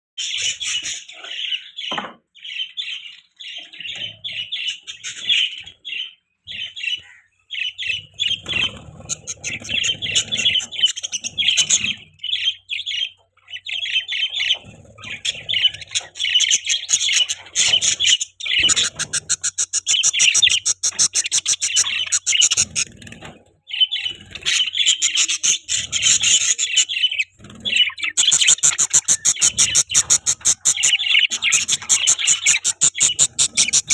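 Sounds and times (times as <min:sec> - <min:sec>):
budgerigars chirping: 0:00.2 - 0:33.9
fast clicking chatter: 0:28.1 - 0:33.9.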